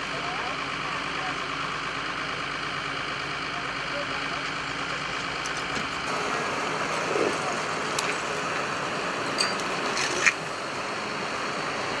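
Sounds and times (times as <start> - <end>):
traffic noise: 4.4 - 12.0.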